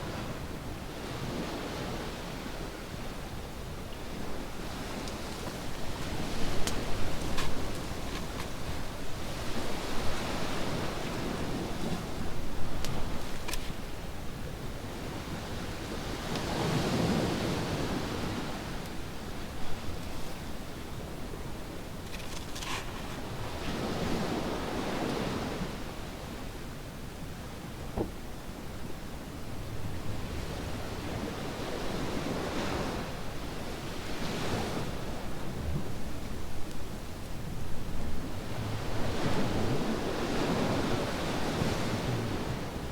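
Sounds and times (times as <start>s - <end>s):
campfire crackling: 4.8s - 9.6s
ocean waves on beach: 38.2s - 42.9s.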